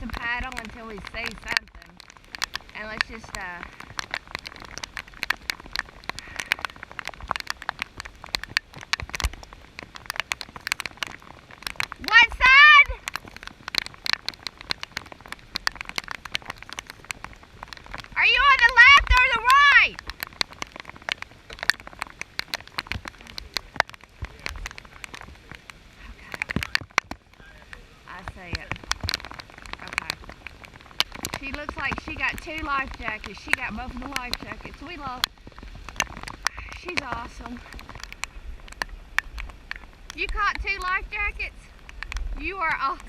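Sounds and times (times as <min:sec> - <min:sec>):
rain drops hitting: 0:00.0 - 0:43.0.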